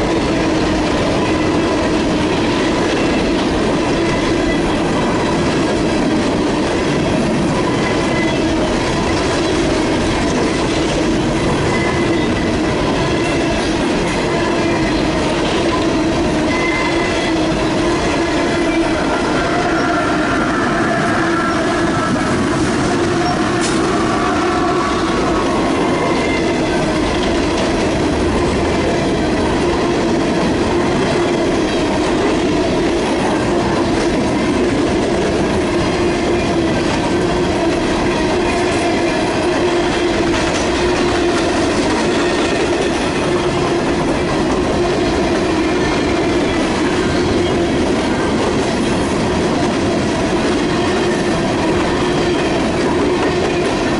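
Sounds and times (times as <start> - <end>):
train wheels rolling on rails: 0.0 - 53.9
steady whining tone: 7.2 - 45.6.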